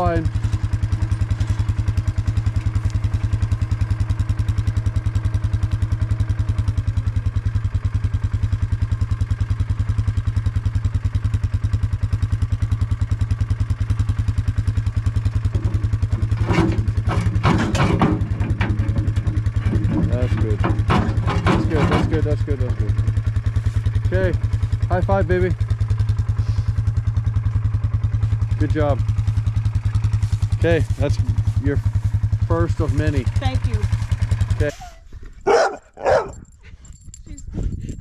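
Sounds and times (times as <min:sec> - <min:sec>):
diesel engine running: 0:00.0 - 0:38.0
clattering knocks: 0:15.5 - 0:22.2.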